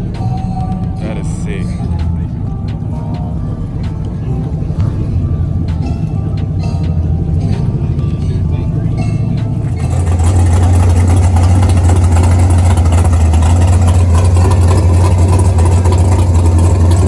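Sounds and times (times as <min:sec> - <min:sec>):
car engine idling loudly: 0:00.0 - 0:17.0.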